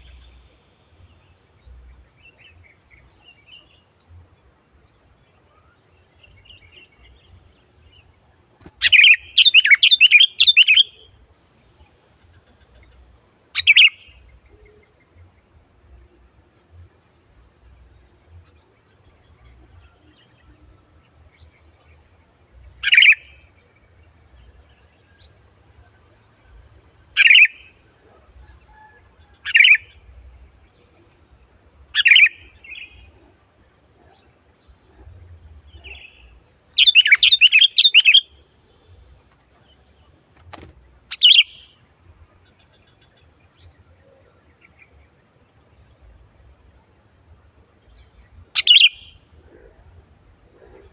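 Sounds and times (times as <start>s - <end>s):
bulbul calling: 8.6s - 11.1s, 13.6s - 14.8s, 22.8s - 23.3s, 27.2s - 27.7s, 31.9s - 33.2s, 35.7s - 38.3s, 40.4s - 41.8s, 48.5s - 49.2s.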